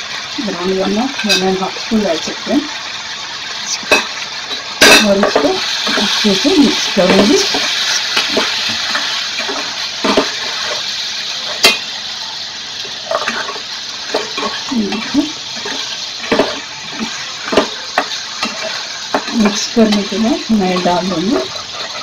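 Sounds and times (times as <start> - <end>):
chicken sizzling in oil: 0.0 - 22.0.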